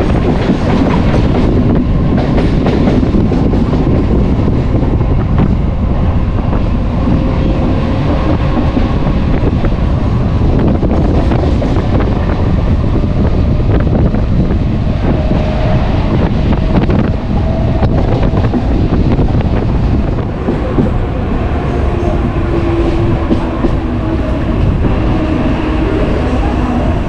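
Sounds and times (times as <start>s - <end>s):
electric train rumbling: 0.0s - 27.0s.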